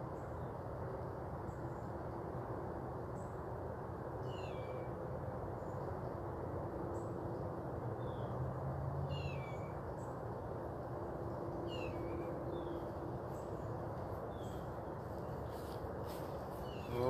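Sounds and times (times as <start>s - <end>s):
bird chirps: 9.1s - 10.1s, 11.6s - 13.7s, 16.5s - 17.0s.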